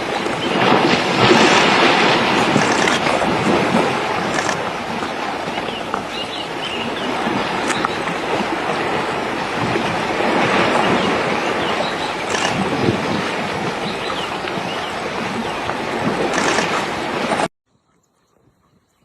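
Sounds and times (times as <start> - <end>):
steady rushing noise: 0.0 - 17.5.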